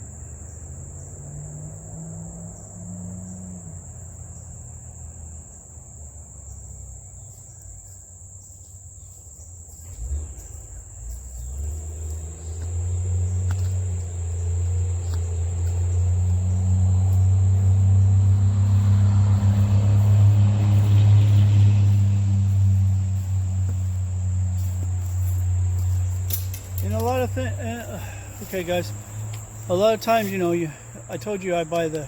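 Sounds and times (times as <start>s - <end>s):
crickets chirring: 0.0s - 32.0s
vehicle engine rumble: 0.0s - 32.0s.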